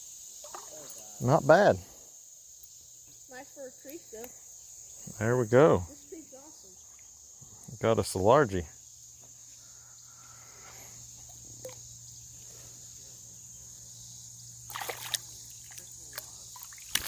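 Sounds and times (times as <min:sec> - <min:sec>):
crickets chirring: 0:00.0 - 0:17.0
water splashing: 0:14.6 - 0:17.0.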